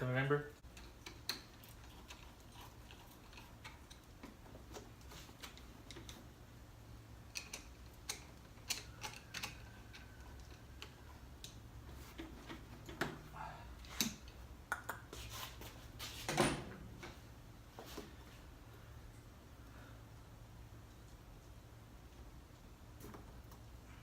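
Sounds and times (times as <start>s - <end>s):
hand tools and plastic parts clicking: 0.6s - 6.4s, 7.2s - 13.2s.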